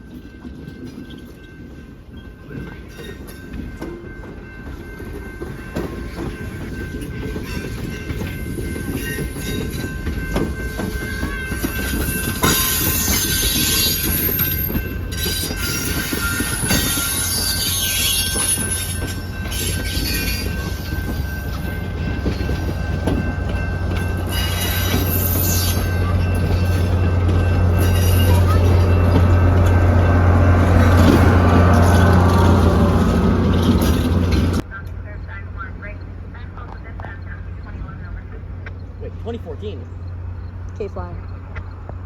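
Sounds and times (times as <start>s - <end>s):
sharp clacks of train wheels: 0.0s - 34.9s, 35.8s - 42.0s
low train rumble: 0.0s - 42.0s
train wheels squealing on rail: 7.4s - 29.8s.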